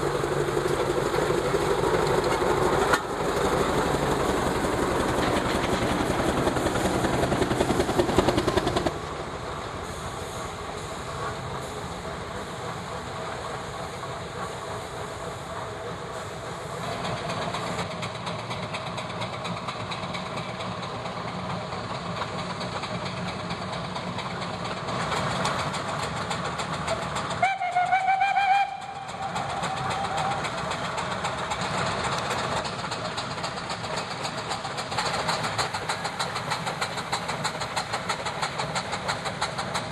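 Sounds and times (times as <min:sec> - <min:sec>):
steam traction engines running: 0:00.0 - 0:39.9
steam whistle blast: 0:27.4 - 0:30.4.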